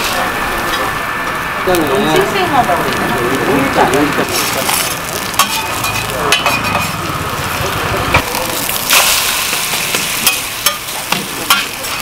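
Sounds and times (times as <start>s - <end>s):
pancakes sizzling in oil: 1.7s - 12.0s.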